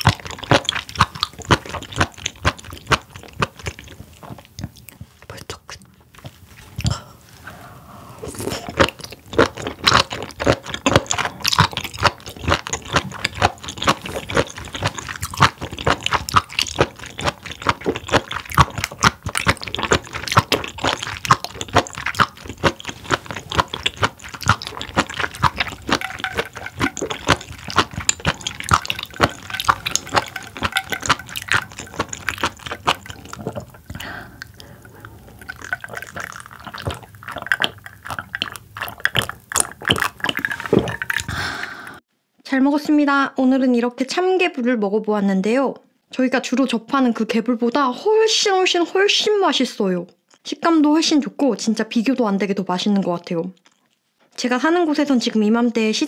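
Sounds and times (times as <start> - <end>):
wet clicky chewing: 0.0 - 5.6, 8.4 - 42.0, 53.6 - 54.1
person drinking from a glass: 6.8 - 42.0.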